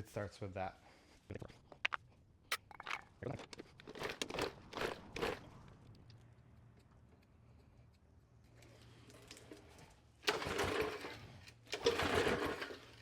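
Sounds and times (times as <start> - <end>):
mower engine pull-start chuffing: 3.8 - 5.5, 10.2 - 13.0.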